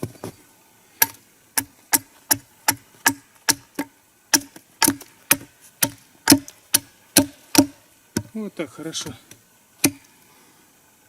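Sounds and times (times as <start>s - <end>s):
axe chopping wood: 1.0s - 8.3s, 9.8s - 10.0s.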